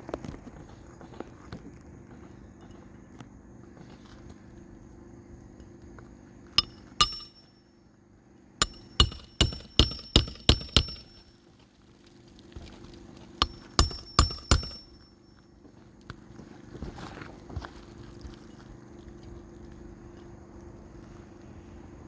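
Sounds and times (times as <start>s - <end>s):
hammer striking metal: 6.6s - 7.5s, 8.6s - 11.3s, 13.4s - 15.0s.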